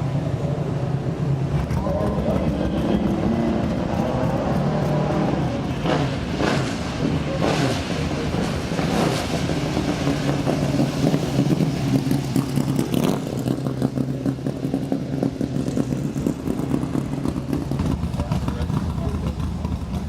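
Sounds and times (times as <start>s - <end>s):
race car engine running: 0.0s - 20.0s.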